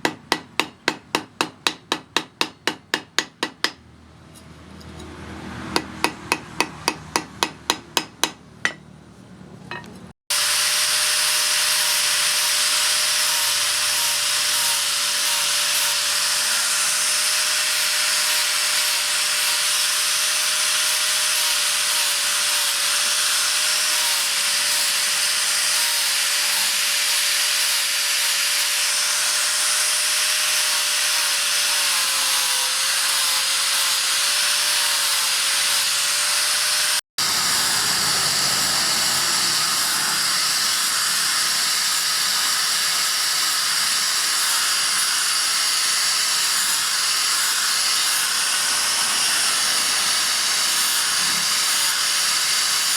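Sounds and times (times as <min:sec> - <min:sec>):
hammer striking steel: 0:00.0 - 0:08.9, 0:09.7 - 0:10.1
power grinder on steel blade: 0:09.7 - 0:52.9.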